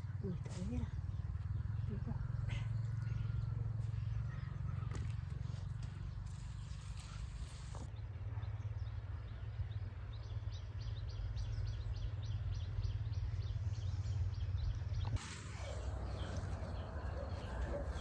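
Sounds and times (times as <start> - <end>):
bird chirping: 8.7 - 18.0.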